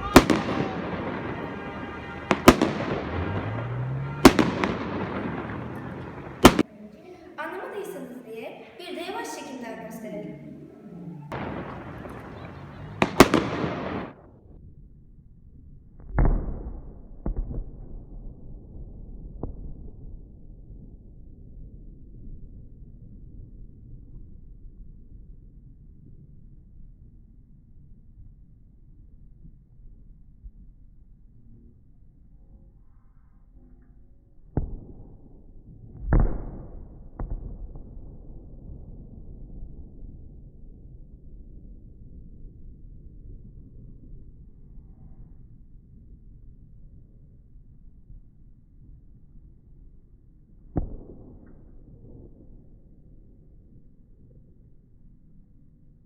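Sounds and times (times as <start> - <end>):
firework boom: 0.0 - 6.6, 11.2 - 14.1
faint firework pops: 0.0 - 6.7, 11.3 - 14.1, 50.8 - 51.7
firework cracks: 0.0 - 6.7, 11.3 - 14.1
sharp bangs: 0.0 - 6.7, 8.8 - 14.1.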